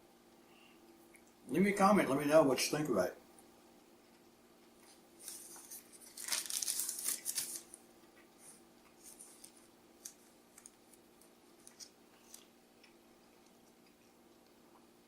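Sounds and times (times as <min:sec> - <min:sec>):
small rustles and clicks: 0:03.9 - 0:14.6
paper wrapper crinkling: 0:05.2 - 0:07.8, 0:08.4 - 0:12.5.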